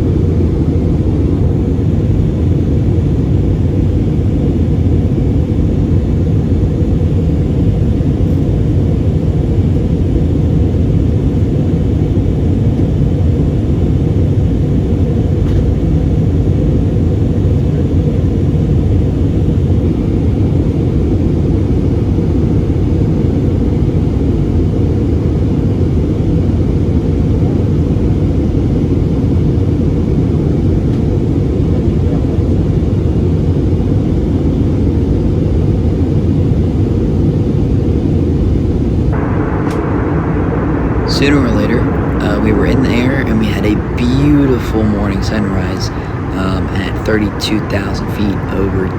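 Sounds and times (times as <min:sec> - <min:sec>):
jet engine cabin rumble: 0:00.0 - 0:48.9.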